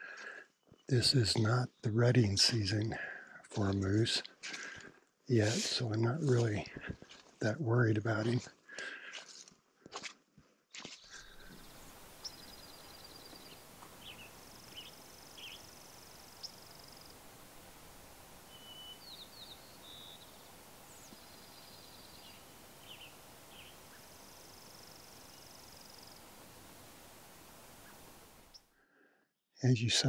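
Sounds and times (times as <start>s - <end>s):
steady background hiss: 5.3s - 6.7s, 11.1s - 28.7s
wild birds singing and calling: 10.9s - 28.7s.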